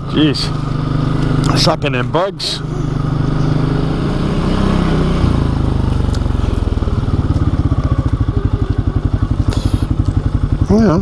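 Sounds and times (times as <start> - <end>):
atv engine chugging: 0.0 - 11.0.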